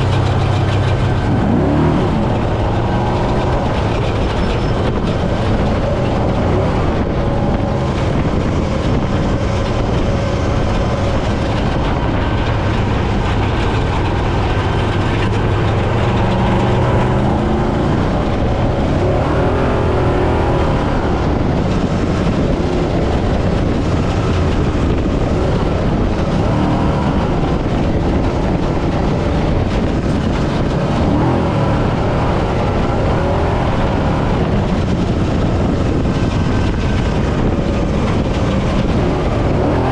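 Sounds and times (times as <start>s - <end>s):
rattling chassis: 0.0s - 39.9s
truck engine revving: 0.0s - 39.9s.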